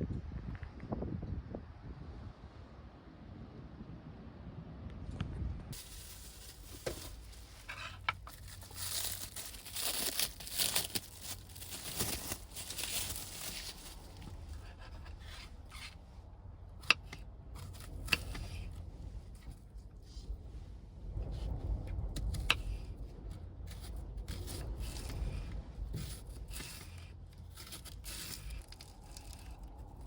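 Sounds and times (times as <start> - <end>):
crinkling and tearing by hand: 5.8 - 15.9, 23.7 - 30.0.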